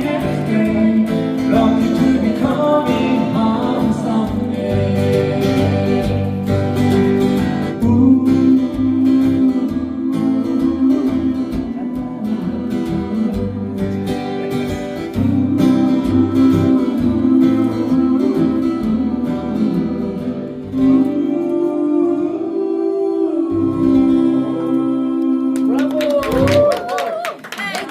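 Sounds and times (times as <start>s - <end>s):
acoustic guitar strumming: 0.0s - 21.5s
wordless vocal line: 0.0s - 27.9s.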